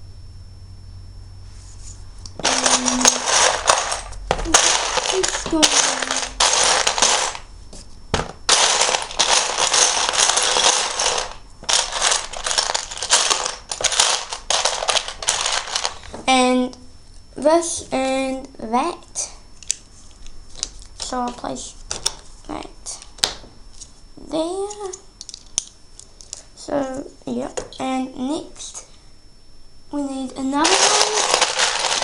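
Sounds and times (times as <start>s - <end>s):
plastic bricks clattering: 2.4s - 7.4s, 8.2s - 16.1s, 30.6s - 32.0s.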